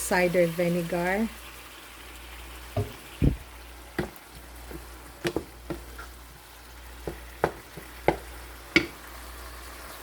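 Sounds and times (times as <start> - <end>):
vegetables sizzling in a pan: 0.0 - 10.0
utensil knocking against pan: 2.8 - 3.0, 4.0 - 6.1, 7.0 - 9.0.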